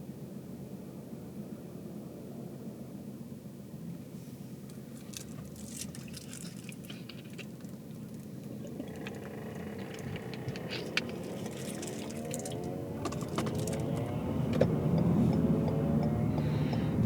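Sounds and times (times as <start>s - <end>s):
road and engine rumble: 1.4s - 17.0s
faint engine note rising: 8.6s - 17.0s.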